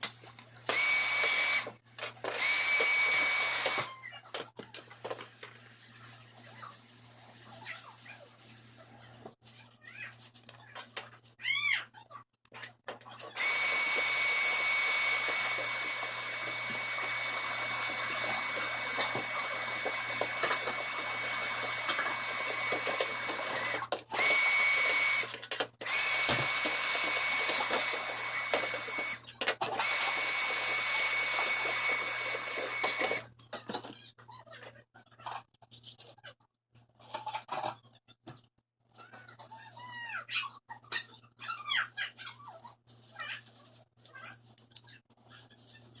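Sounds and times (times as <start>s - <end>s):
small electric motor whining: 0.7s - 4.0s, 13.4s - 33.3s.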